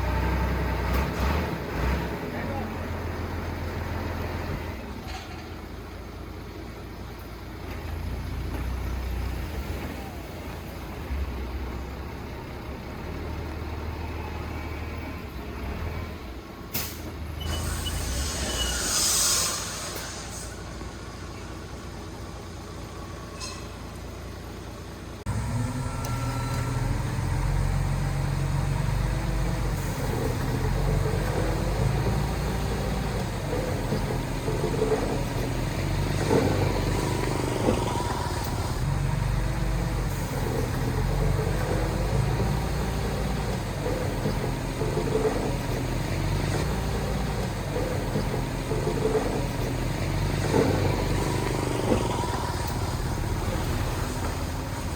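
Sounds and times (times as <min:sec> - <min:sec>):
diesel engine rumble: 0:00.0 - 0:54.9
machinery squeals and clanks: 0:16.7 - 0:24.7, 0:25.3 - 0:39.0, 0:39.6 - 0:54.9.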